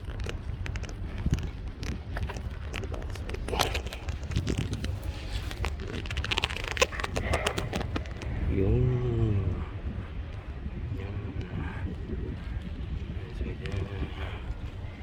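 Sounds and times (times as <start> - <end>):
bicycle clicks and rattles: 0.0 - 8.4
wind rumble on microphone: 0.0 - 15.0.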